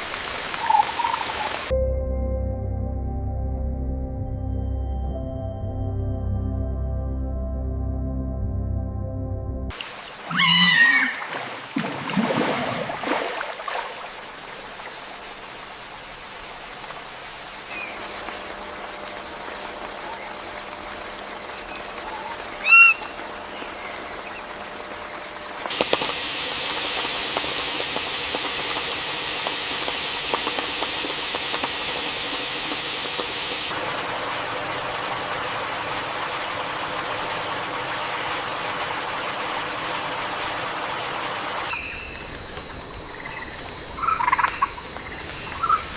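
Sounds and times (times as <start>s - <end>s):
rain hiss: 0.0s - 1.7s, 9.7s - 45.9s
animal calls: 10.3s - 11.3s, 22.0s - 23.1s.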